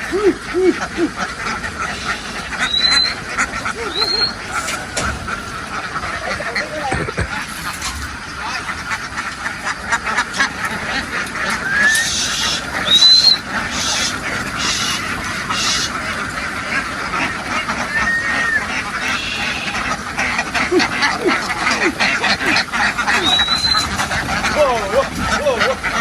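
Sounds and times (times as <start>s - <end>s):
ducks quacking: 0.0s - 26.0s
high whistled notes: 2.6s - 3.2s, 17.9s - 19.8s.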